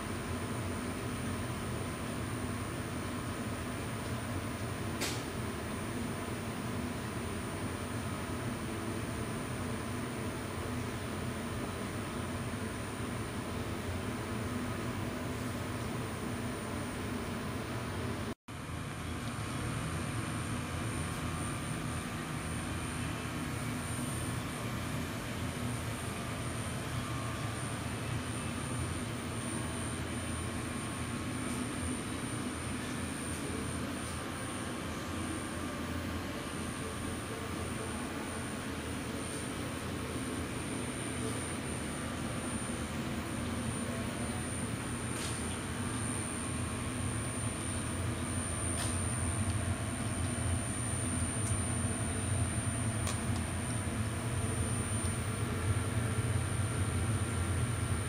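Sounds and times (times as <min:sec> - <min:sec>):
high-pitched machine whine: 0:18.8 - 0:58.0.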